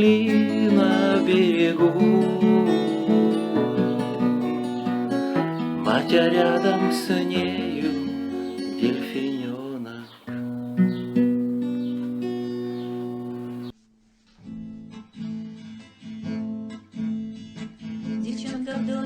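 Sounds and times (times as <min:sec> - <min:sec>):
acoustic guitar chord ringing: 0:00.0 - 0:13.7
strummed guitar chords: 0:00.0 - 0:13.7.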